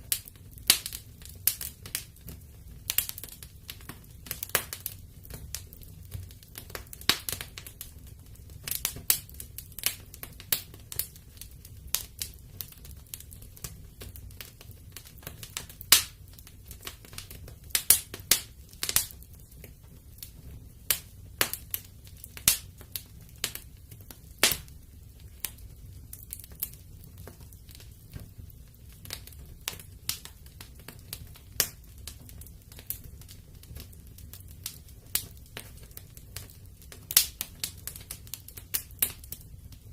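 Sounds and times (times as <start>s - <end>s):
fire low rumble: 0.0s - 39.9s
wood fire crackling: 0.0s - 39.9s.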